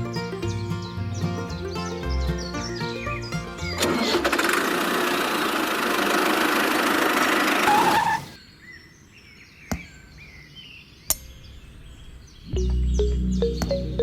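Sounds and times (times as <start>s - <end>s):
small motor running: 4.3s - 8.4s.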